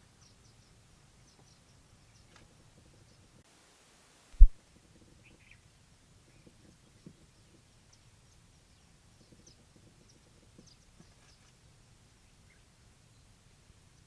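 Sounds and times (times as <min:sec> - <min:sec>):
faint bird chirps: 0:05.1 - 0:14.0.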